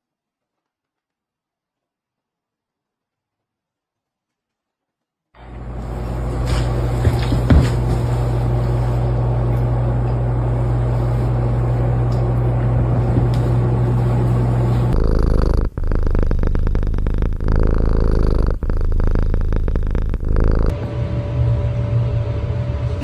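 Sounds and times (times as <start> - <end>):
cat purring loudly: 12.2 - 20.8.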